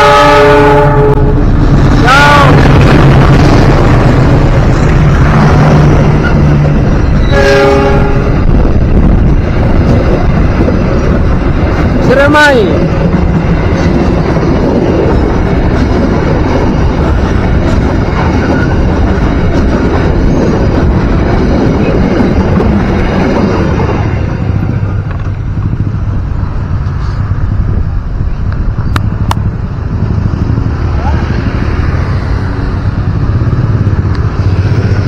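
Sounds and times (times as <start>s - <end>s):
train wheels rumbling and clattering: 0.7s - 35.0s.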